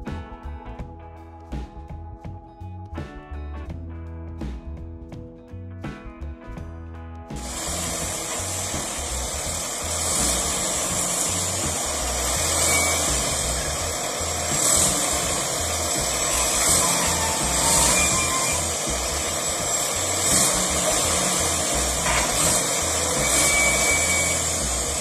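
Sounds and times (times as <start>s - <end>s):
strummed guitar music: 0.0s - 25.0s
machine rumble: 7.3s - 25.0s.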